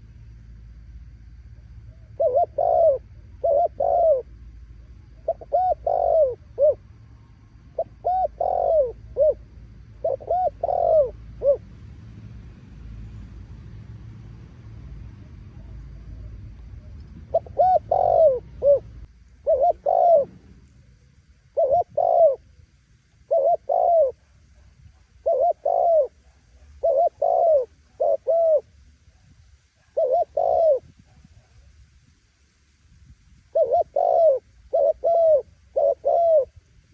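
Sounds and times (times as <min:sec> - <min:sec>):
dove cooing: 0:01.6 - 0:11.7, 0:15.4 - 0:20.4, 0:21.5 - 0:28.8, 0:29.8 - 0:31.7, 0:33.5 - 0:36.7.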